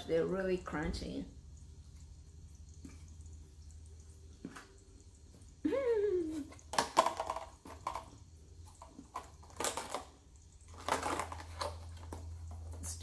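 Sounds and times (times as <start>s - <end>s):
person humming mmm: 5.6s - 6.6s
cookies crunching being chewed: 6.5s - 12.8s.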